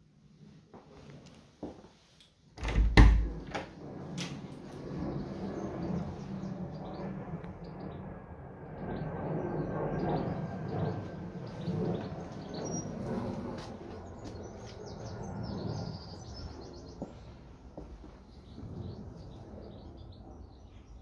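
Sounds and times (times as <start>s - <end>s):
steady low rumble: 2.6s - 21.0s
small songbirds chirping: 8.9s - 13.0s, 14.0s - 17.4s, 18.2s - 21.0s.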